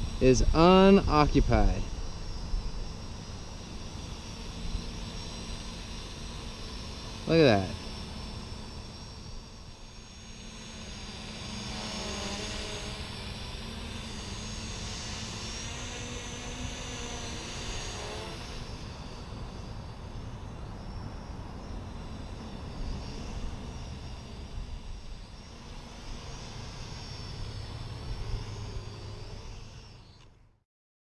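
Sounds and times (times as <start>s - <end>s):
low wind rumble: 0.0s - 7.2s
drone propellers whining: 0.0s - 30.6s.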